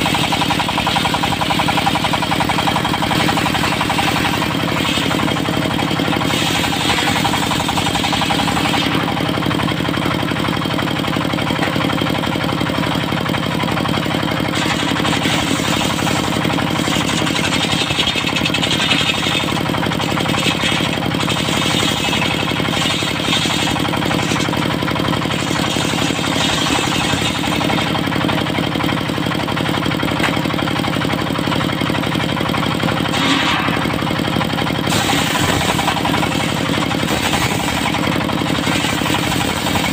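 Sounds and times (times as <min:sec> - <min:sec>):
circular saw cutting wood: 0:00.0 - 0:10.2, 0:14.4 - 0:28.5, 0:33.0 - 0:39.9
diesel engine running: 0:00.0 - 0:39.9.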